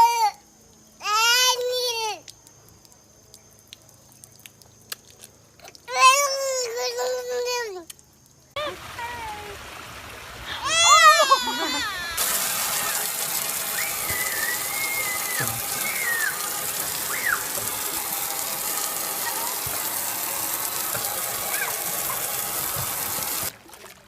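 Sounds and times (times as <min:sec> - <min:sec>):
water gushing spray: 0:08.6 - 0:23.5
high squeals: 0:11.8 - 0:20.7.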